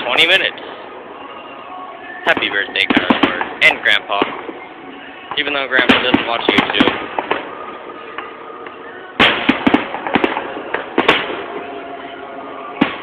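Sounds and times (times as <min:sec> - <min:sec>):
fireworks bangs and crackles: 0:02.2 - 0:08.4, 0:09.1 - 0:13.0
fireworks boom: 0:02.3 - 0:04.6, 0:05.3 - 0:07.6, 0:09.2 - 0:11.8, 0:12.8 - 0:13.0.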